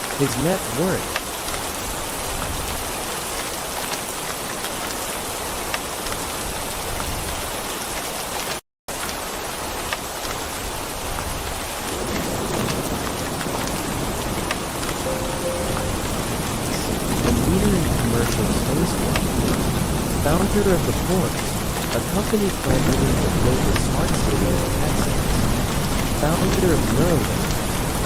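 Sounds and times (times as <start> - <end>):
heavy rain hissing and pattering: 0.0 - 28.0
thunder rumble: 11.9 - 28.0.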